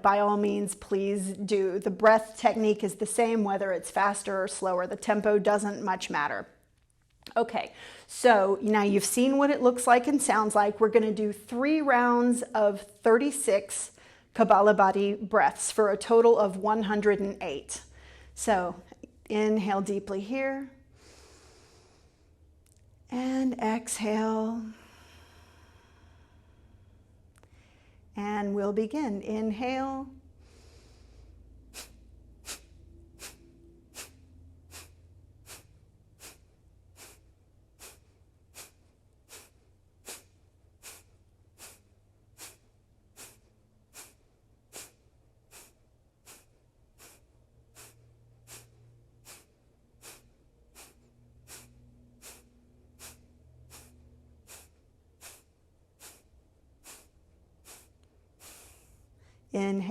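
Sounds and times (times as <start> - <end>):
forceful nasal exhales: 30.3 - 59.5.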